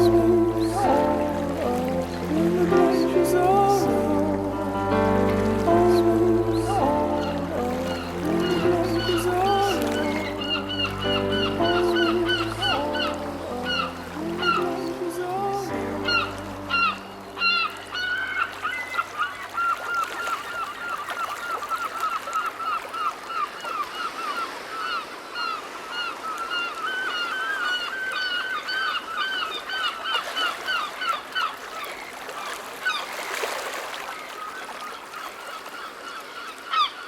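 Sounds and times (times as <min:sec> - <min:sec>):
birds honking: 0:00.0 - 0:21.8.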